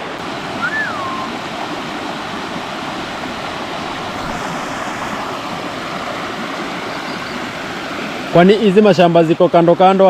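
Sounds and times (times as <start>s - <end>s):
river and waterfall rushing: 0.0s - 10.0s
whistled note rising and falling: 0.6s - 1.4s.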